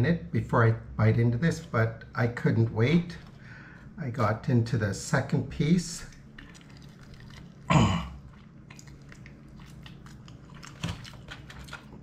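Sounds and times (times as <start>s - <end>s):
person chewing crunchy food: 6.1s - 12.0s.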